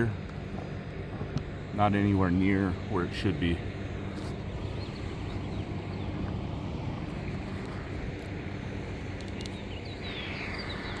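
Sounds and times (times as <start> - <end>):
low outdoor rumble: 0.0 - 11.0
small birds chirping: 4.2 - 8.0, 8.8 - 11.0
faint clicks: 9.1 - 9.6.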